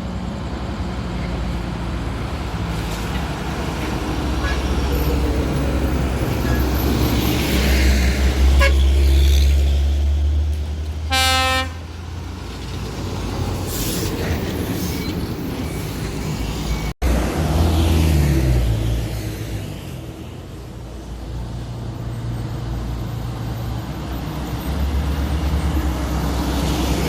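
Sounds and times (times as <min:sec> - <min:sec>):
heavy truck engine rumbling: 0:00.0 - 0:27.0
truck horn blast: 0:08.4 - 0:09.4, 0:11.1 - 0:12.0.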